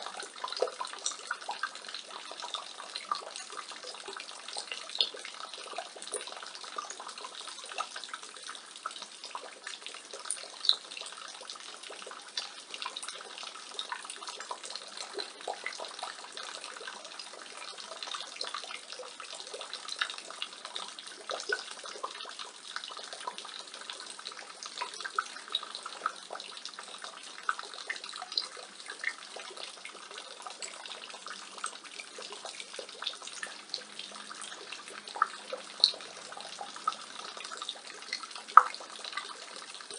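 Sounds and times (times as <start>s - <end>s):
rainwater splashing from gutter: 0.0s - 39.9s.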